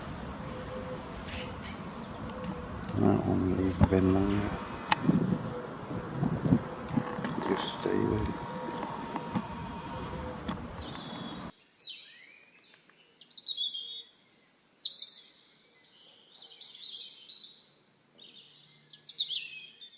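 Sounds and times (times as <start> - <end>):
steady outdoor noise: 0.0 - 11.6.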